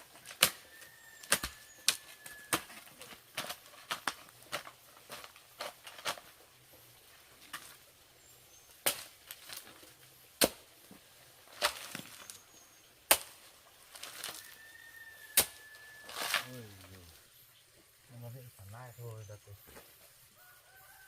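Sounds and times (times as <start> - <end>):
hand tool chopping strikes: 1.2 - 2.8.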